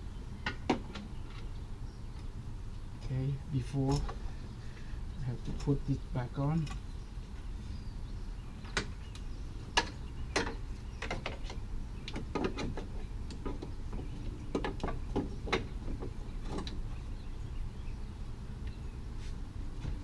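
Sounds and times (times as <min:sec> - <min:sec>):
steady low rumble: 0:00.0 - 0:12.1
car parts clicking and knocking: 0:09.8 - 0:16.8.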